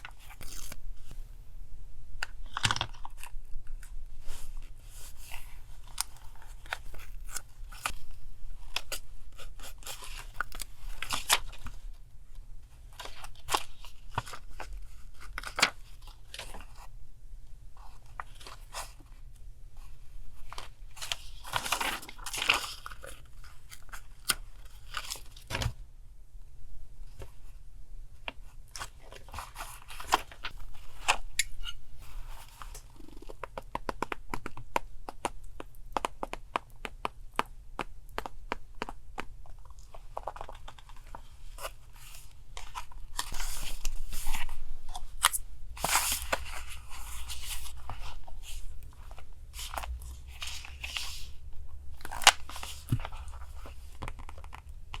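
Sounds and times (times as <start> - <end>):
paper rustling and crinkling: 2.2 - 12.1, 12.7 - 17.0, 17.8 - 25.8, 28.3 - 34.6, 38.8 - 55.0
small clicks and taps: 33.3 - 39.6.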